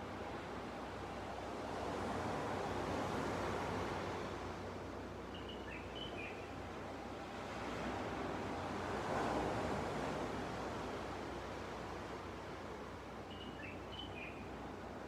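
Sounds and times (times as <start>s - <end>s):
bird chirping: 5.3s - 6.4s, 13.3s - 14.4s
sea waves washing onto beach: 7.1s - 13.2s.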